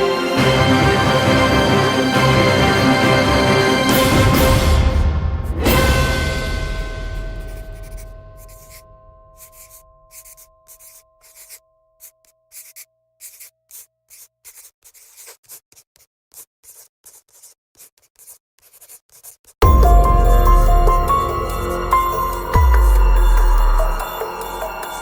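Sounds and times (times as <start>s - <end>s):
background music: 0.0s - 8.8s, 19.6s - 25.0s
pen scratching on paper: 6.9s - 8.8s, 9.4s - 19.6s.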